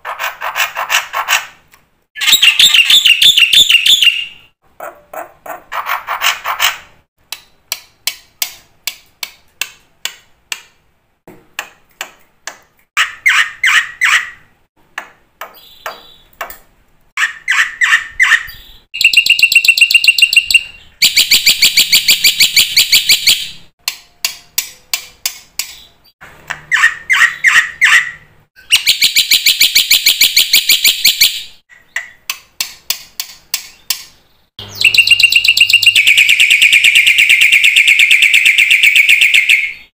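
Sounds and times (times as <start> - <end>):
harsh chattering bird calls: 2.2 - 4.5, 13.0 - 14.5, 17.2 - 23.4, 26.6 - 30.9, 33.6 - 39.9.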